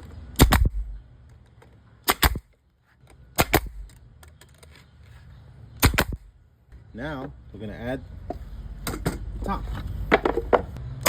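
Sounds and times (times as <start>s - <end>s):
nail gun firing into wood: 0.4s - 1.0s, 2.0s - 2.5s, 3.4s - 4.0s, 5.8s - 6.2s.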